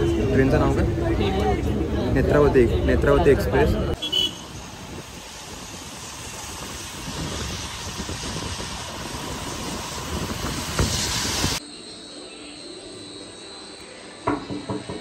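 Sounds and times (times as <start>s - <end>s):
train rushing: 4.4s - 11.6s
sharp knock: 14.2s - 15.0s.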